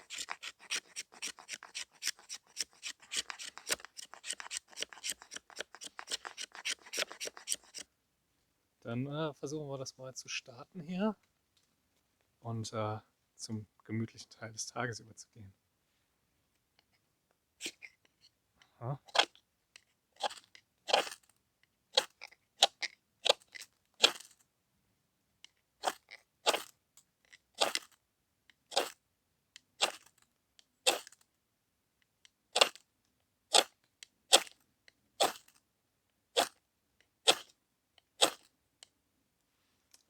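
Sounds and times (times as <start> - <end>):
knife scraping ferro rod: 0.0 - 7.8, 17.6 - 18.0.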